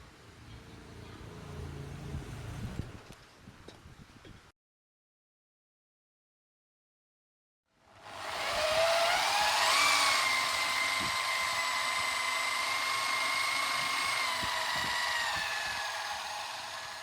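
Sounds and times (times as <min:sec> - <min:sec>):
power tool motor whining: 0:07.9 - 0:17.0.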